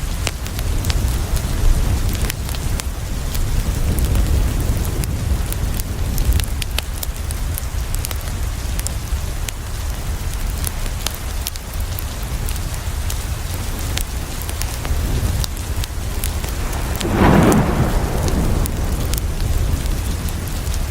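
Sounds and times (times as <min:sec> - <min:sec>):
rain against a window: 0:00.1 - 0:20.9
deep low rumble: 0:16.0 - 0:20.7
wood fire crackling and popping: 0:16.0 - 0:20.9.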